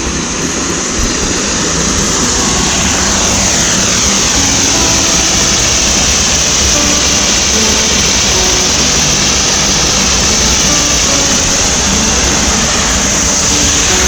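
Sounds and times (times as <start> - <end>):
airplane flying over: 0.0 - 14.0.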